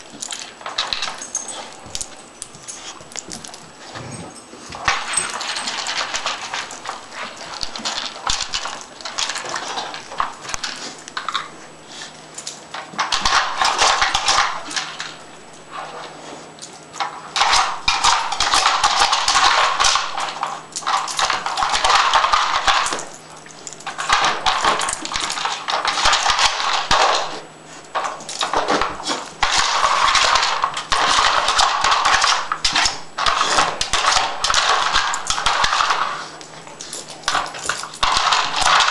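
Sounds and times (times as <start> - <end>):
plastic puzzle feeder clattering: 28.2 - 38.9.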